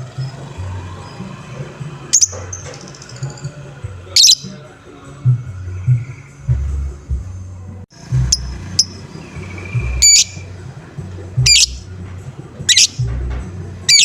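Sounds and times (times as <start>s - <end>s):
music with low repeating beat: 0.2s - 14.0s
lovebird shrill calls: 2.1s - 3.5s, 4.1s - 4.6s, 8.3s - 10.5s, 11.4s - 11.8s, 12.7s - 13.0s.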